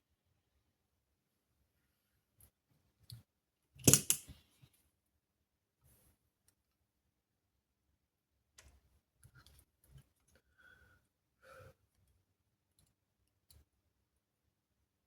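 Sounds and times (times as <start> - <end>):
small tools clicking and tapping: 3.8 - 4.4.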